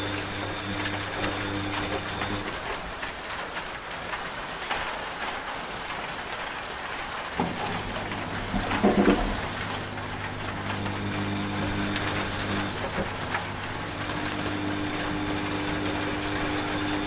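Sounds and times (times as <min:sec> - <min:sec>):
washing machine running: 0:00.0 - 0:03.7, 0:07.1 - 0:17.0
steady rain: 0:00.0 - 0:17.0
washing machine thump: 0:07.4 - 0:14.1.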